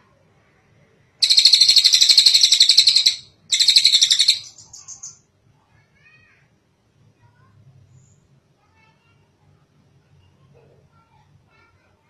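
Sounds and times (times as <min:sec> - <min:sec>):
bird chattering trill: 0:01.2 - 0:05.2.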